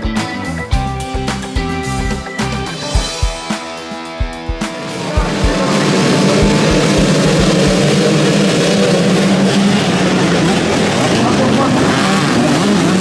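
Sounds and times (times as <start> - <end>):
rock music with bass drum beats: 0.0 - 12.6
motorcycle engines running loud: 4.6 - 13.0.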